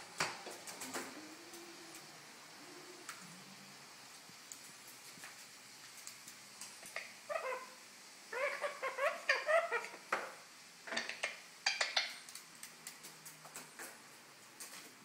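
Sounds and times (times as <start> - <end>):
parrot chattering calls: 6.9 - 10.1, 11.0 - 12.3.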